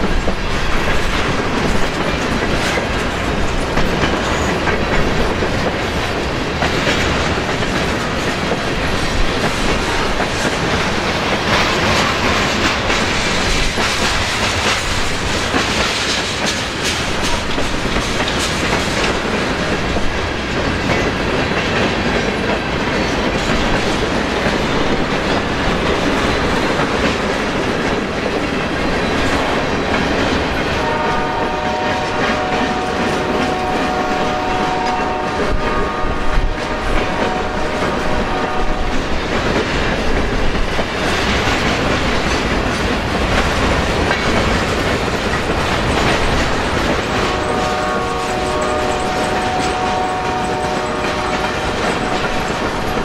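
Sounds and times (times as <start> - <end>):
wheels clacking over rail joints: 0.0 - 53.0
wind buffeting microphone: 0.0 - 53.0.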